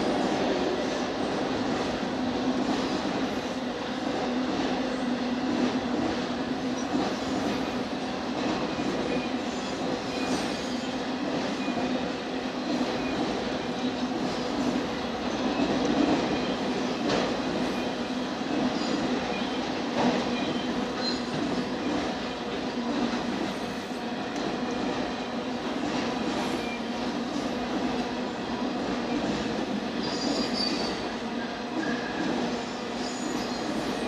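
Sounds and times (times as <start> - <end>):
freight train wheels rumbling: 0.0 - 34.0.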